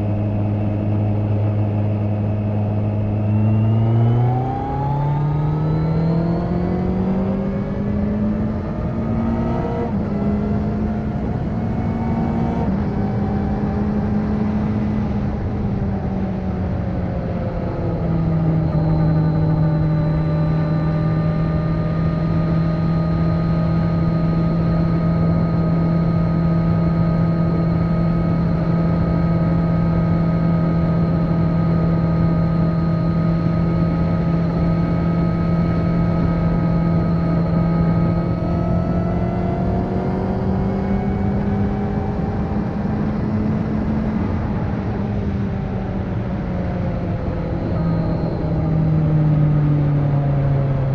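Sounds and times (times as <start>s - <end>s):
motorcycle engine on the road: 0.0s - 50.9s.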